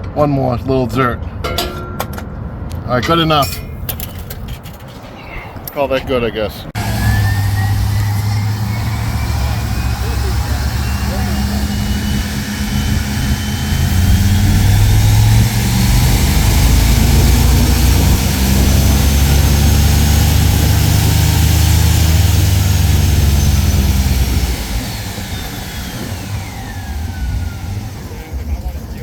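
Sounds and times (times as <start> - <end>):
loud engine running: 6.8 - 29.0
thin high whine: 6.8 - 29.0.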